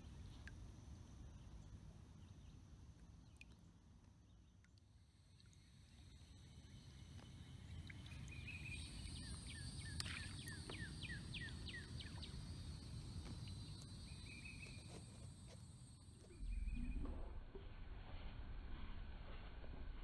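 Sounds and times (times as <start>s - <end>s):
low steady rumble: 4.6s - 20.0s
songbird singing: 6.4s - 17.0s.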